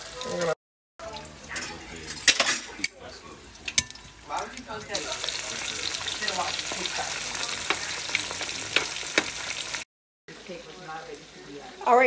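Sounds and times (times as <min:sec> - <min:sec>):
fish sizzling in hot oil: 0:03.4 - 0:12.0
utensil clicking on pan: 0:06.6 - 0:09.7.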